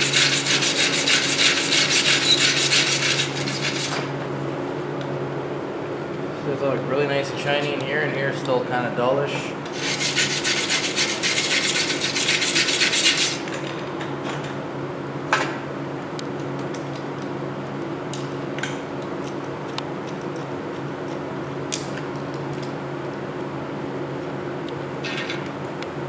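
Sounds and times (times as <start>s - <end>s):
scrubbing metal by hand: 0.0s - 4.0s, 9.8s - 13.4s.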